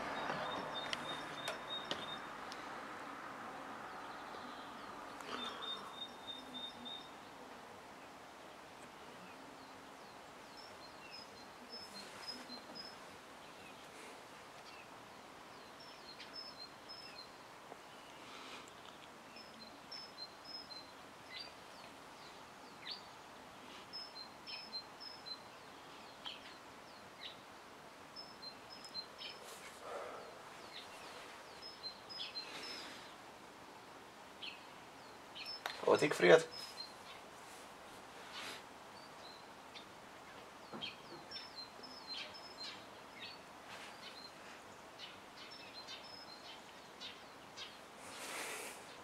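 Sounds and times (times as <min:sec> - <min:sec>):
background hiss: 0:00.0 - 0:49.0
small birds chirping: 0:00.0 - 0:49.0
soft rustling: 0:29.2 - 0:31.6, 0:36.6 - 0:38.8, 0:43.6 - 0:44.8.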